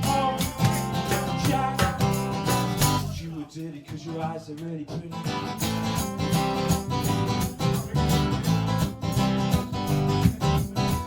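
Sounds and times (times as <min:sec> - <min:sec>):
acoustic guitar strumming: 0:00.0 - 0:03.2, 0:05.1 - 0:11.0.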